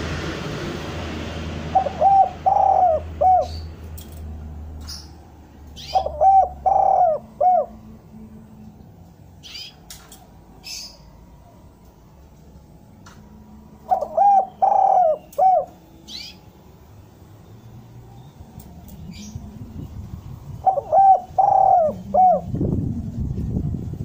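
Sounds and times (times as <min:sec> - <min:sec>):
dove cooing: 0:01.7 - 0:03.6, 0:05.8 - 0:08.0, 0:13.8 - 0:16.4, 0:20.6 - 0:22.6
small bird chirping: 0:04.8 - 0:07.1, 0:09.4 - 0:09.9, 0:13.9 - 0:16.5.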